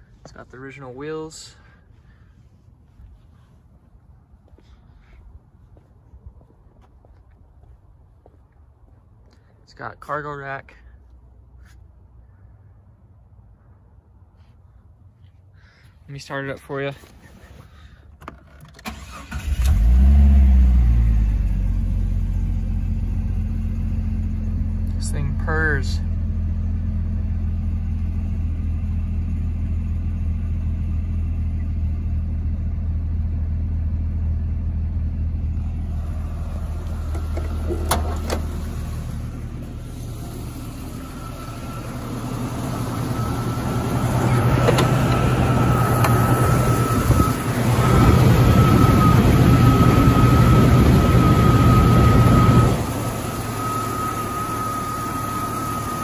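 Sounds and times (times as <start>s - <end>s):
car engine idling: 18.8s - 56.0s
steady high whine: 21.8s - 56.0s.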